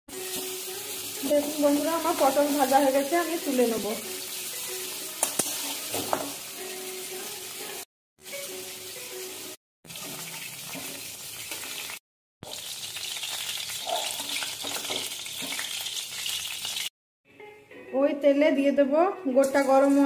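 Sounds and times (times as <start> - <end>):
vegetables sizzling in hot oil: 0.1 - 16.9.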